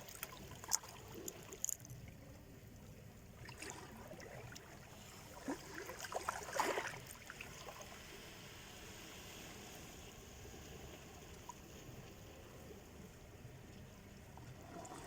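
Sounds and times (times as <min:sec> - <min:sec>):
sea waves breaking on shore: 0:03.5 - 0:12.4.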